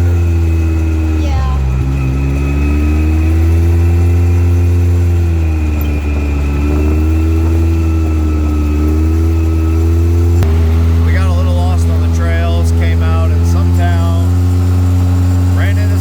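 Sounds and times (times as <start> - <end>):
strong low hum: 0.0 - 16.0
vehicle engine running: 0.0 - 16.0.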